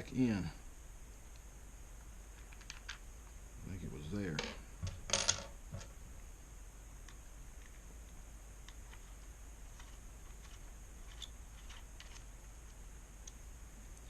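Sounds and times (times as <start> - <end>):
faint room hum: 0.0 - 14.0
small parts clicking: 2.3 - 3.0, 7.0 - 14.0.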